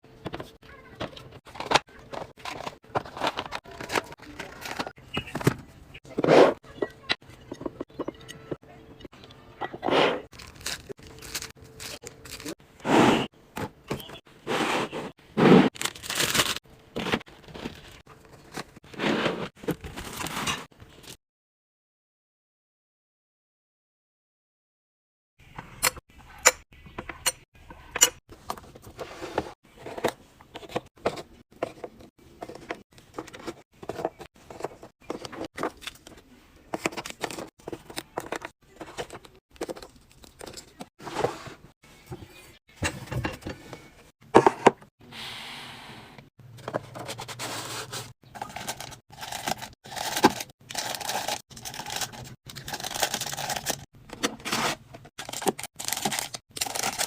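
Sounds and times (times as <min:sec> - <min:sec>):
plastic crinkling and tearing: 0:10.3 - 0:12.6, 0:15.7 - 0:16.6, 0:54.5 - 0:57.0.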